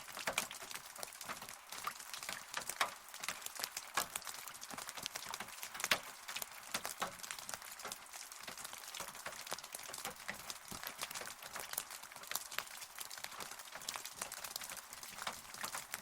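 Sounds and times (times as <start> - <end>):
rain hiss: 0.0 - 16.0
raindrops on hard surface: 0.0 - 16.0.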